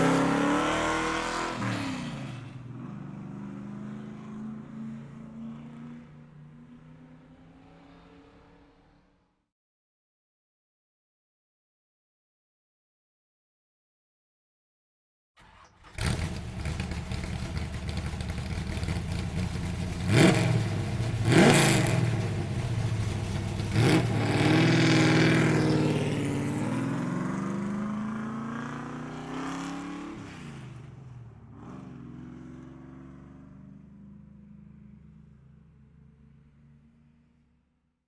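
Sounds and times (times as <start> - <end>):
car engine revving: 0.0 - 2.9, 15.4 - 30.2.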